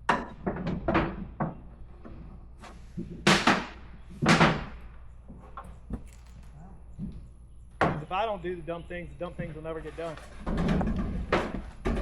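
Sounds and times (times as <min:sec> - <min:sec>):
knocks and bangs: 0:03.0 - 0:05.0.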